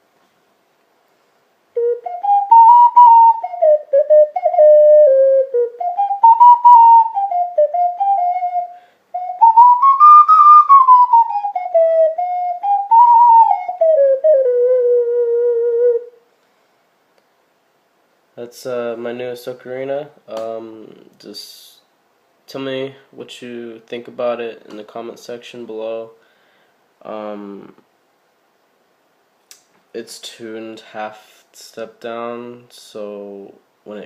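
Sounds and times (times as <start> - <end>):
ocarina melody: 1.7 - 16.2.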